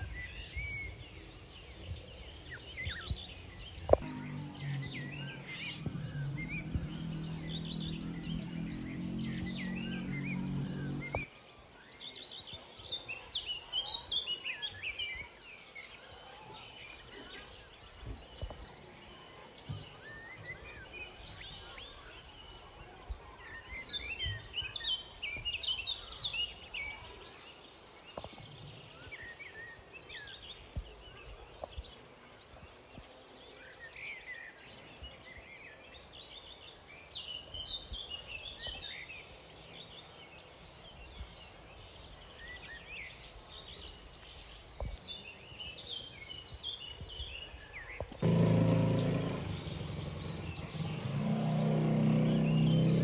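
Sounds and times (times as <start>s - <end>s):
small birds chirping: 0.0s - 53.0s
low pitched sound: 3.9s - 11.2s.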